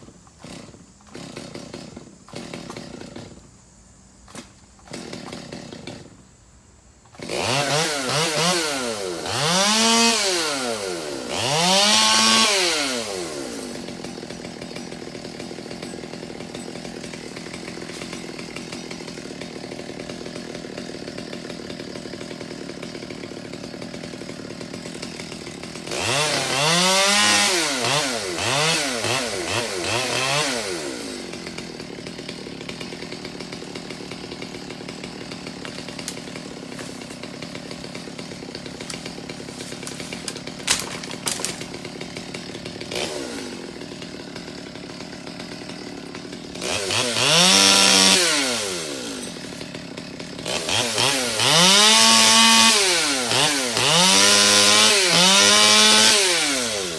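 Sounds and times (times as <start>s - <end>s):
chainsaw engine idling and revving: 0.0s - 6.4s, 7.0s - 56.9s.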